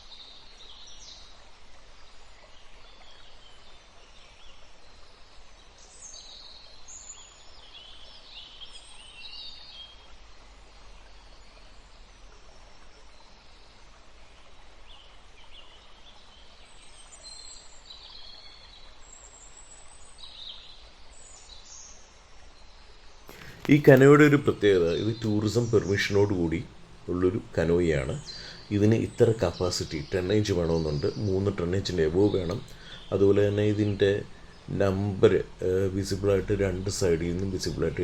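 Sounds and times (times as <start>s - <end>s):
birds chirping and whistling: 23.3s - 38.0s
faint low hum: 23.3s - 38.0s.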